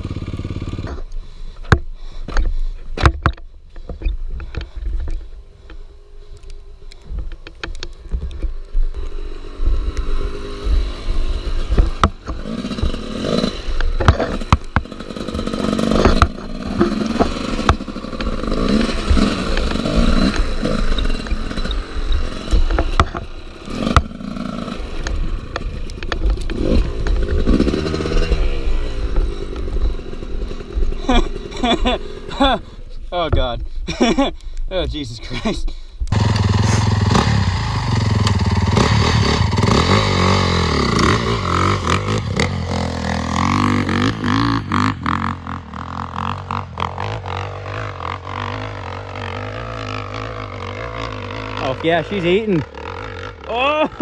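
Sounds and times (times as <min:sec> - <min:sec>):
dirt bike engine revving: 0:00.0 - 0:01.0, 0:09.2 - 0:32.5, 0:36.1 - 0:54.0
sharp knocks and clatter: 0:13.8 - 0:21.7.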